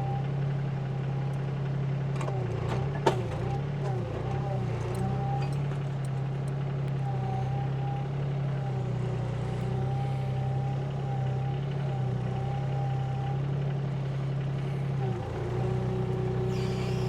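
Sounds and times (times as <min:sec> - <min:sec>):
heavy machinery engine drone: 0:00.0 - 0:17.0
faint high whine: 0:16.4 - 0:17.0.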